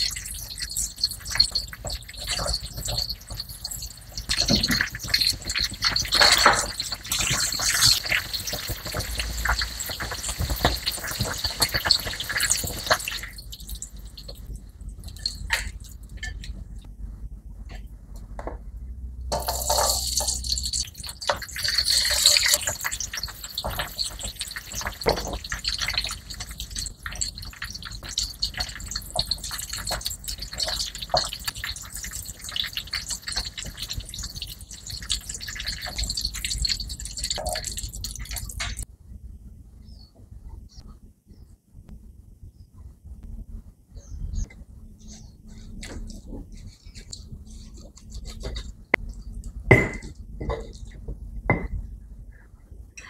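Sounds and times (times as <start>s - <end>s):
hot oil sizzling in a wok: 0.0s - 16.5s, 19.3s - 38.8s.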